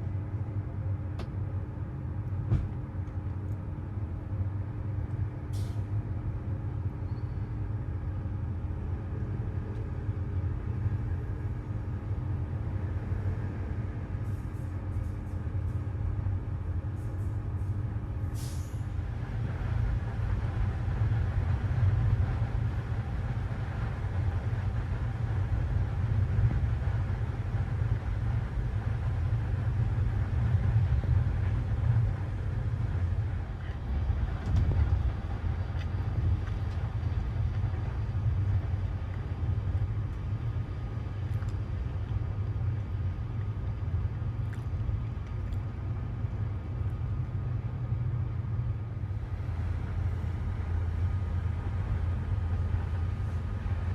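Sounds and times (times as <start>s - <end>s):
train wheels rumbling: 9.1s - 42.3s.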